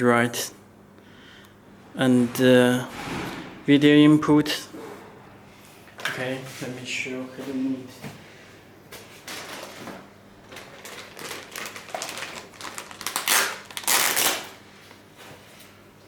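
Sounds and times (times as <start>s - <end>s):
packaging rustling: 9.3s - 14.6s.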